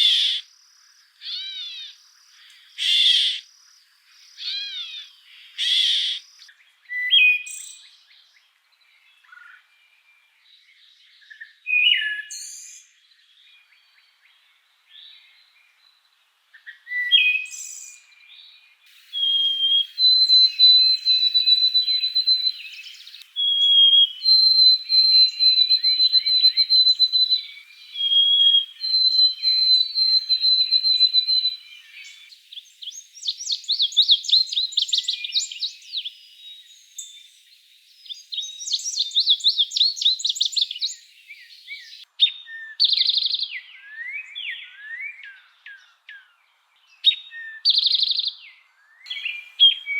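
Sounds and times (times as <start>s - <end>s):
birds calling and singing: 0.0s - 10.0s, 16.8s - 49.9s
faint bird warbling: 18.9s - 32.3s
long high whistled bird notes: 18.9s - 39.1s, 49.1s - 49.9s.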